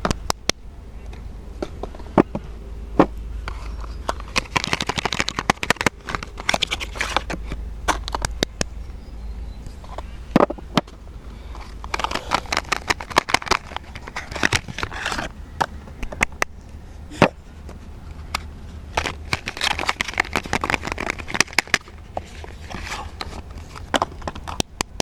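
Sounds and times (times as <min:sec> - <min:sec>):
paper and plastic wrappers crinkling: 0:03.5 - 0:07.4, 0:11.5 - 0:15.3, 0:18.9 - 0:25.0.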